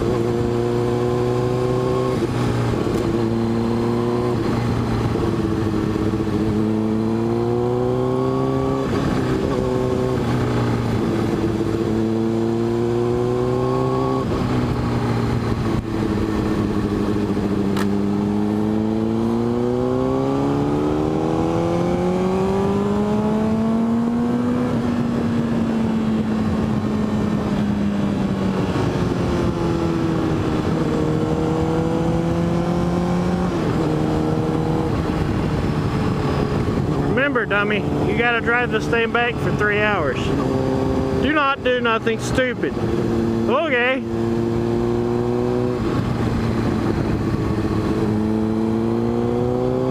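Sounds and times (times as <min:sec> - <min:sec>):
motorcycle engine revving: 0:00.0 - 0:49.9
wind rush: 0:21.2 - 0:41.3, 0:42.5 - 0:49.9.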